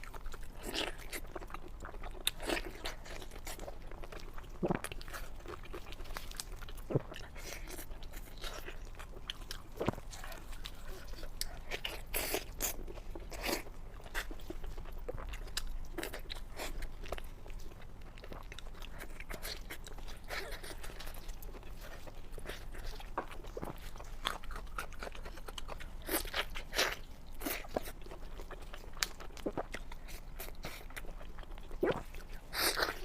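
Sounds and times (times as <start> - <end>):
crunchy chewing: 0.0 - 33.0.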